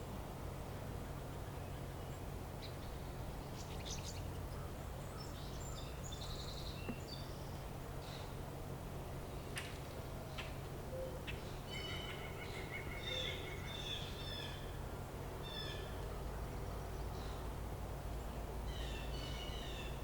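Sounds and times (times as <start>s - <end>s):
small birds chirping: 1.5s - 8.4s.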